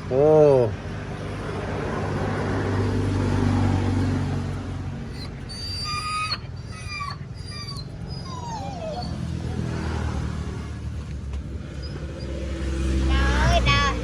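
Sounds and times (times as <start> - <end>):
dog whining: 1.2 - 4.2, 5.0 - 10.8, 11.7 - 12.6.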